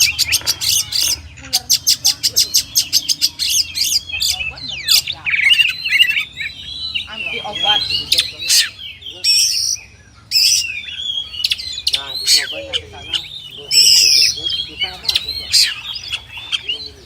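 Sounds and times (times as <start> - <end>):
songbird singing whistled notes: 0.0 - 17.0.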